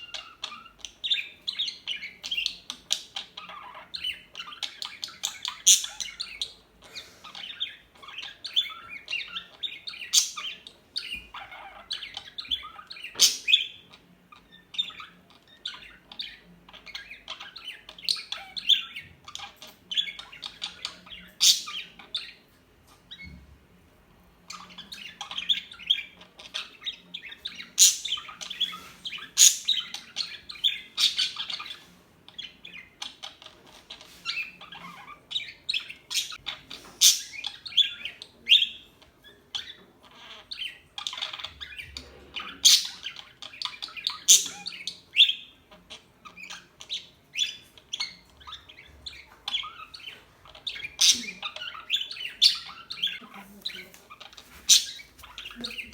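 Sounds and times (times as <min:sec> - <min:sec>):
budgerigars chirping and squawking: 0:00.0 - 0:55.9.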